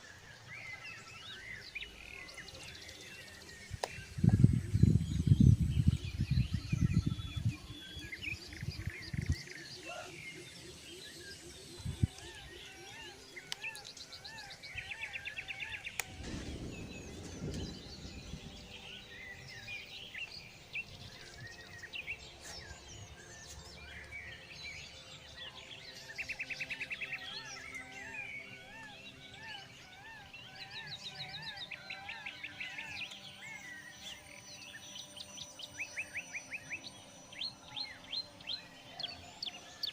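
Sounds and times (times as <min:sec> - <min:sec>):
birds calling and chirping: 0:00.0 - 0:39.9
faint outdoor rustle: 0:07.4 - 0:27.9.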